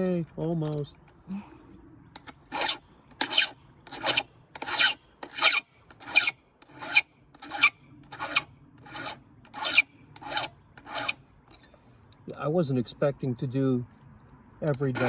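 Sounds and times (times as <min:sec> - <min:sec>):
hand file rasping on chainsaw chain: 0:02.2 - 0:11.2, 0:14.7 - 0:15.0.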